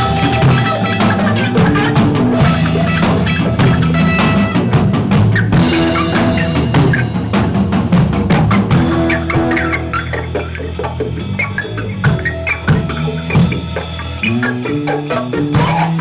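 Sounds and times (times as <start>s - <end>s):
drum kit beat: 0.0s - 16.0s
guitar: 0.0s - 16.0s
sustained bass notes: 0.0s - 16.0s.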